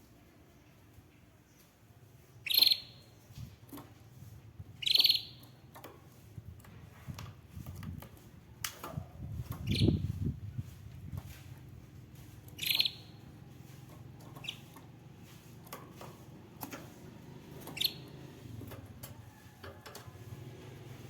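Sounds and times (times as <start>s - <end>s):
canary calls: 2.4s - 3.1s, 4.8s - 5.5s, 12.6s - 13.2s, 14.4s - 14.8s, 17.6s - 18.2s.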